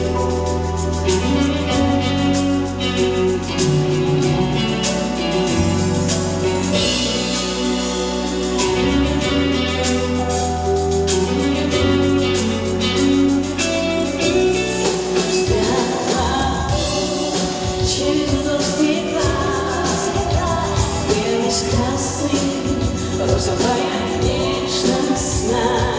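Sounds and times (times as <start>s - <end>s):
band playing pop ballad: 0.0s - 25.9s
person singing: 14.9s - 25.9s.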